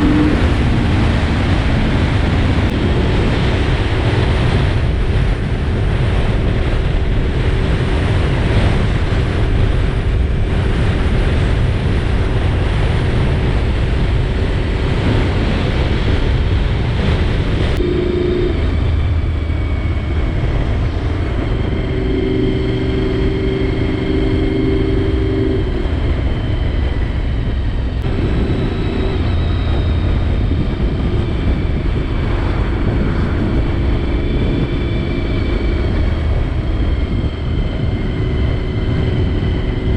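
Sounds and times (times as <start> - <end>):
motorcycle engine running: 0.0 - 4.0
wind rushing over microphone: 0.0 - 39.9.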